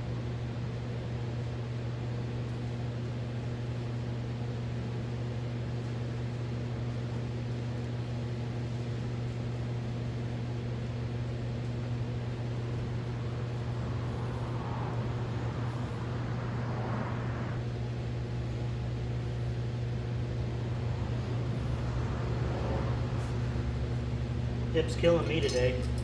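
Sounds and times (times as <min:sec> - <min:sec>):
machine hum: 0:11.4 - 0:26.0.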